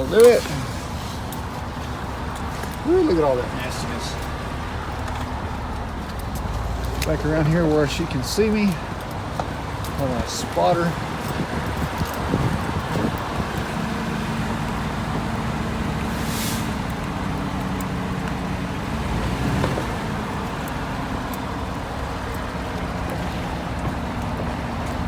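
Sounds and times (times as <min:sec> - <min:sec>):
vehicle engine idling: 0:00.0 - 0:25.0
brief hiss: 0:16.1 - 0:16.8.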